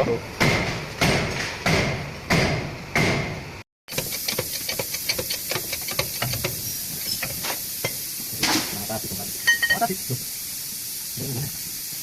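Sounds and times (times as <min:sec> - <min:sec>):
hammer striking metal: 0:00.4 - 0:03.4.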